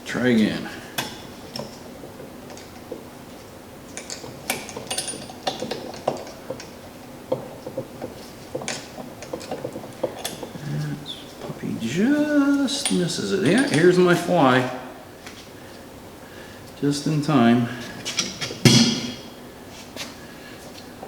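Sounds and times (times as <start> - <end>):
hand tools clinking on steel: 3.9 - 6.8, 8.5 - 14.7.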